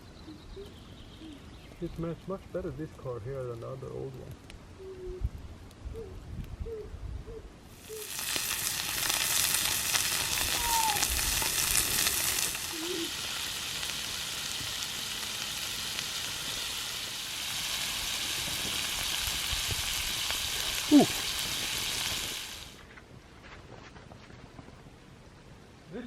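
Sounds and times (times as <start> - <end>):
pork belly sizzling: 7.7 - 22.8.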